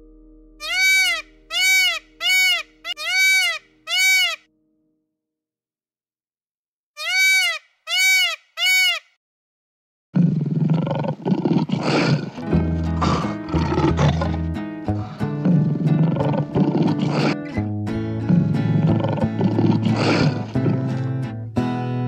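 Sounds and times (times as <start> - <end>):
loud rough low sound: 0.0 - 2.9
animal calls rising and falling: 0.6 - 4.4, 7.0 - 9.1.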